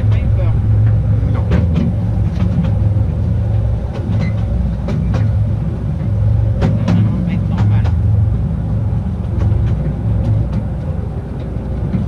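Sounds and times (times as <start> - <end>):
train low rumble: 0.0 - 12.0
wheels clicking on rails: 0.0 - 12.0.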